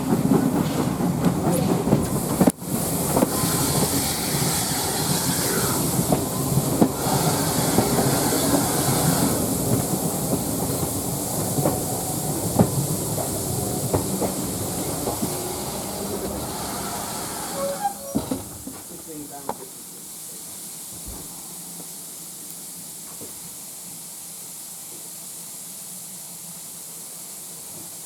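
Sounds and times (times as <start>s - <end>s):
train wheels clicking over rail joints: 0.0s - 18.9s
railway carriage rumble: 0.0s - 20.3s
high hiss: 1.7s - 28.0s.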